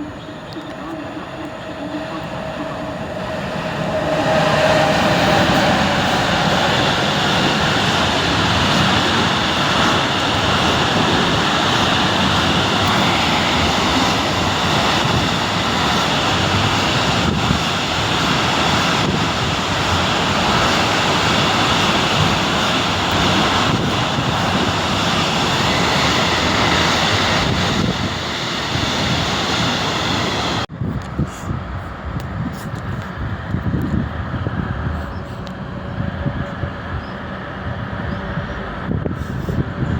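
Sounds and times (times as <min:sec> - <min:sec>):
train rumbling past: 0:00.0 - 0:39.9
wind buffeting microphone: 0:00.0 - 0:39.9.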